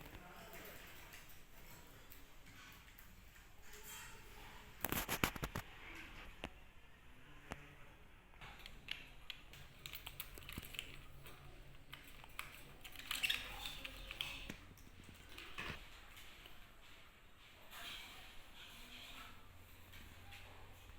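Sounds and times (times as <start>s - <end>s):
small clicks and taps: 8.4s - 15.8s.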